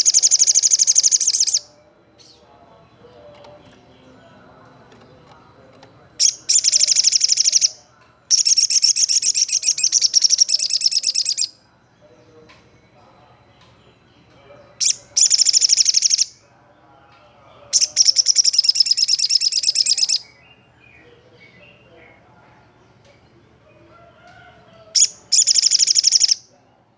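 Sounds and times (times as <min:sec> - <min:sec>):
bird trilling: 0:00.0 - 0:02.4, 0:06.2 - 0:11.6, 0:14.8 - 0:16.4, 0:17.7 - 0:21.9, 0:24.3 - 0:26.5.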